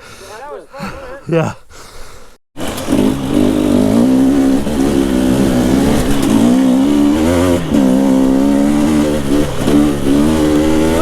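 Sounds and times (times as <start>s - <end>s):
two-stroke dirt bike engine: 2.6s - 11.0s.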